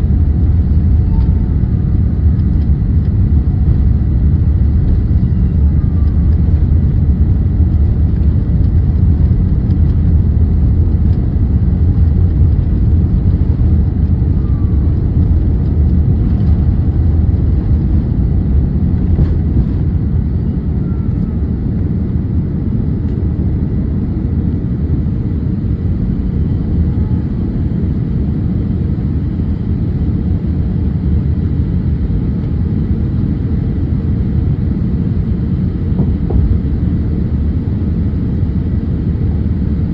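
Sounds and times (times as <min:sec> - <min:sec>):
airliner engine rumble in cabin: 0:00.0 - 0:39.9.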